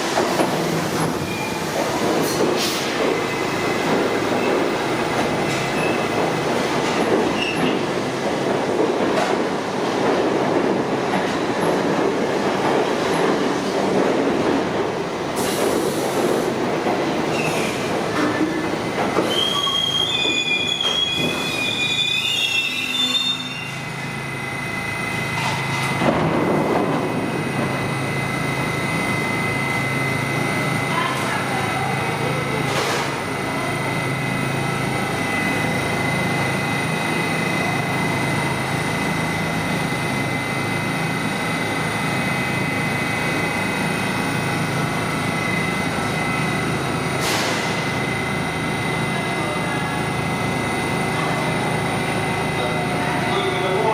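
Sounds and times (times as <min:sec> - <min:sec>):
subway train wheels on rails: 0:00.0 - 0:53.9
train wheels squealing: 0:19.2 - 0:23.9.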